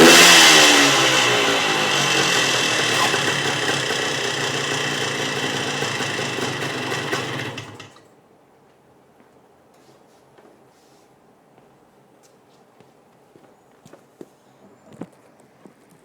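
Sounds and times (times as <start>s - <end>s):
two-stroke motorcycle engine running: 0.0s - 8.0s.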